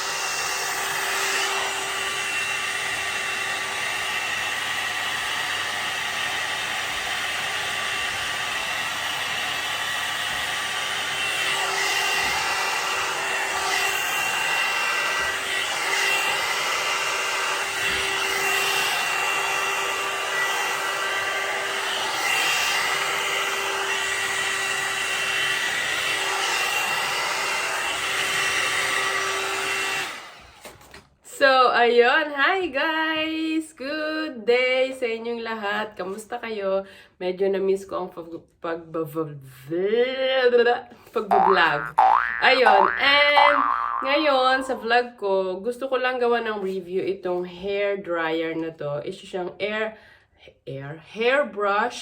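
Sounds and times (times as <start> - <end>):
hair dryer blowing: 0.0 - 30.7.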